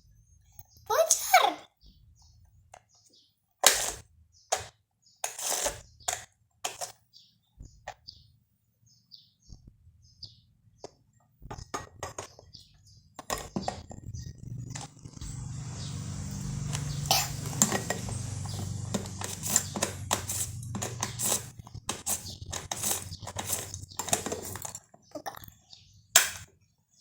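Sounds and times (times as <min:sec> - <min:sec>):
plastic toy parts clicking: 0:03.6 - 0:07.0, 0:19.2 - 0:24.9.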